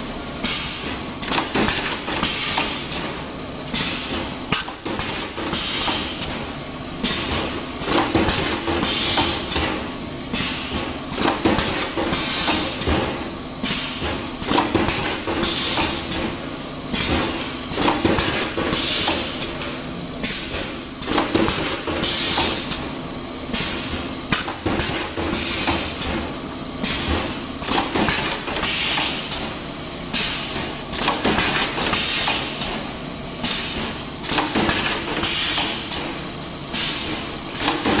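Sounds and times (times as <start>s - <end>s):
steady machine hum: 0.0s - 38.0s
machine hiss: 5.4s - 6.4s, 7.0s - 12.9s, 15.3s - 16.3s, 17.0s - 19.5s, 20.2s - 22.8s, 30.1s - 32.8s, 33.4s - 36.1s.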